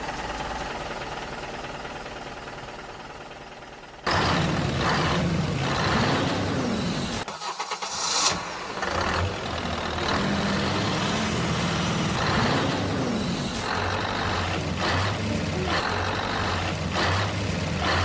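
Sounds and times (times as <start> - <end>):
tractor engine revving: 4.0 - 18.0.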